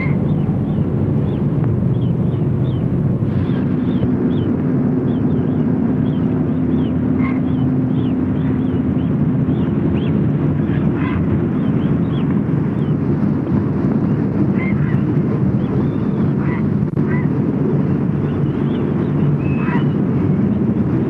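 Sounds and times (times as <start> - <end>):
small birds chirping: 0.0 - 4.5, 5.1 - 10.2
hum: 0.0 - 21.0
low rumble: 0.0 - 21.0.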